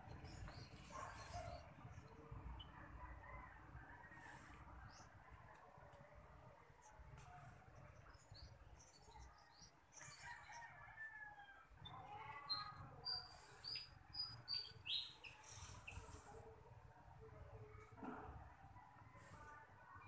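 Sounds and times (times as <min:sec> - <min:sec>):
rooster-like crow: 0:10.0 - 0:11.7
small bird chirping: 0:11.8 - 0:16.3.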